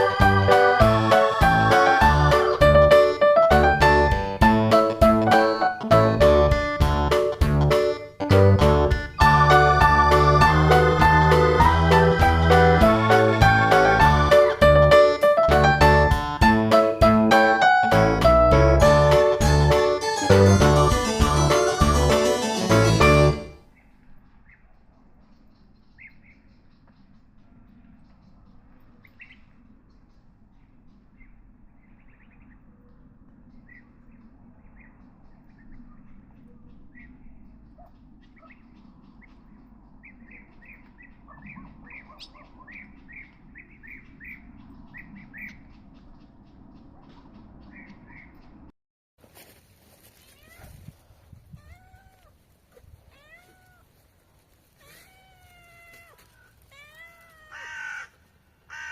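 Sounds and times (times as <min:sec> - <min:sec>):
faint bird chirps: 0:23.6 - 0:48.6
cat meowing: 0:50.2 - 0:50.8, 0:51.6 - 0:54.0, 0:54.8 - 0:58.0.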